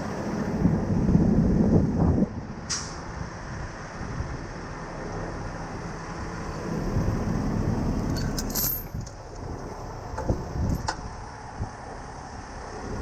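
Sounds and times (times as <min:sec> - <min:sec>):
truck engine rumbling: 0:00.0 - 0:13.0
wind on microphone: 0:00.2 - 0:04.7, 0:08.8 - 0:11.8.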